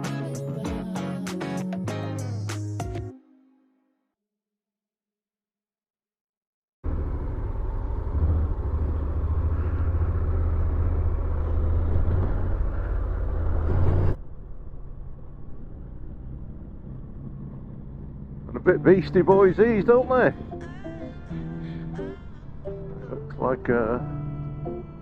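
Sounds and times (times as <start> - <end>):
road noise: 6.8 - 25.0
motorcycle engine running: 6.9 - 25.0.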